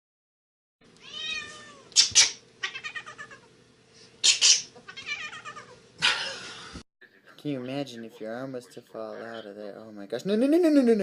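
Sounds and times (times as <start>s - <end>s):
cat meowing: 1.0s - 2.0s, 2.6s - 3.4s, 4.9s - 5.8s
cat harsh cries: 1.0s - 3.5s, 4.3s - 5.8s.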